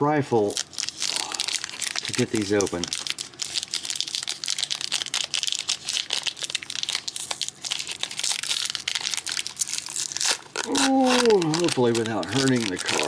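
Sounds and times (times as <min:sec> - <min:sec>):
wrapper crinkling and tearing: 0:00.4 - 0:13.0.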